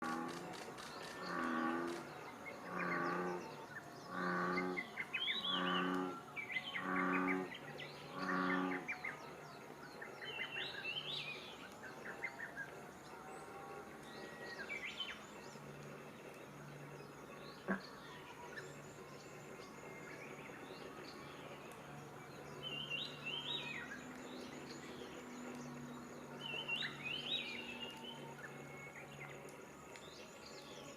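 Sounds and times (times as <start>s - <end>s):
small birds chirping and trilling: 0.0s - 30.9s
bullfrog deep moo-like call: 1.2s - 2.0s, 2.6s - 3.5s, 4.1s - 6.2s, 6.8s - 7.5s, 8.1s - 8.9s.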